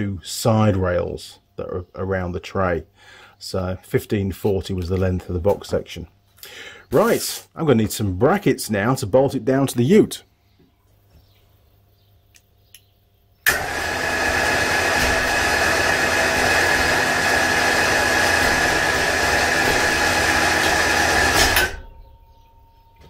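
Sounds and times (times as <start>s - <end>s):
loud machine noise with high whine: 13.4s - 22.0s.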